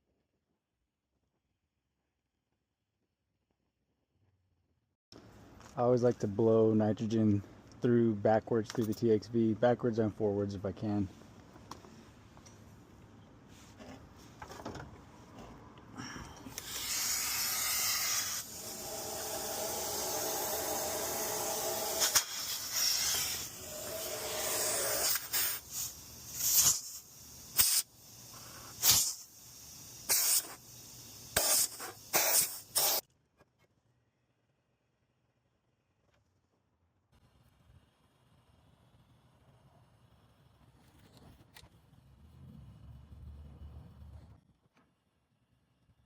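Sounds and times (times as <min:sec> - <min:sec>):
short gas spurts: 0:15.9 - 0:33.0
nitrogen gas hissing through lines: 0:16.3 - 0:33.0.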